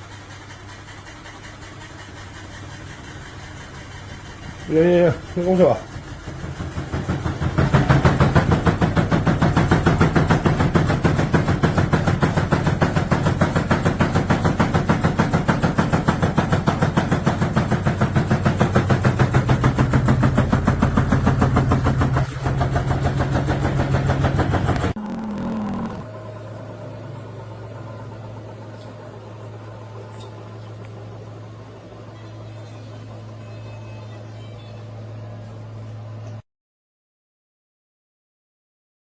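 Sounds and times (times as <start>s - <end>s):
washing machine spinning: 0.0s - 25.0s, 26.1s - 33.4s.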